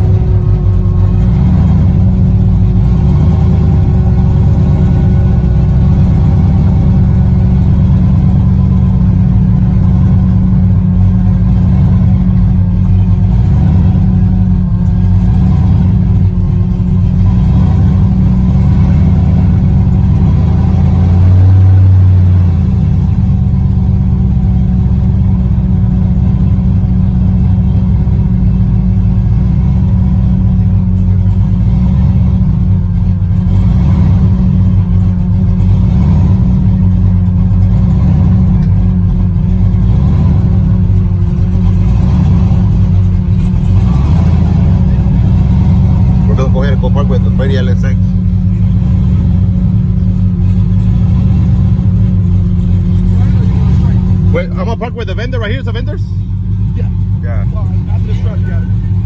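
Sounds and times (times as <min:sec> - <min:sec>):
truck engine rumbling: 0:00.0 - 0:59.0.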